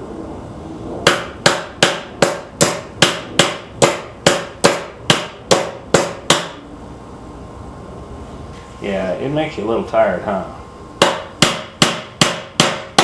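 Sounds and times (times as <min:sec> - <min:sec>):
hammer striking nail into wood: 0:01.1 - 0:06.6, 0:11.0 - 0:13.0.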